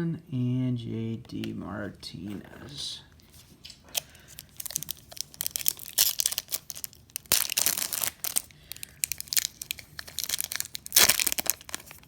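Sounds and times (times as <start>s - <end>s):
foil wrapper crinkling and tearing: 3.7s - 12.0s.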